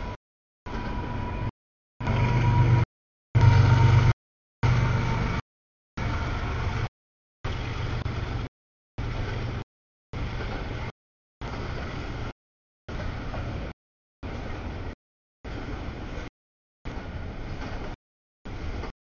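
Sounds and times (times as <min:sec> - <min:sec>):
freight train rumbling past: 0:03.4 - 0:05.4.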